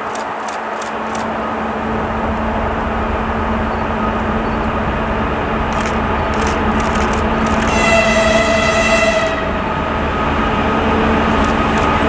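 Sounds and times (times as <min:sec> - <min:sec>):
train rumbling with hum: 0:00.0 - 0:12.0.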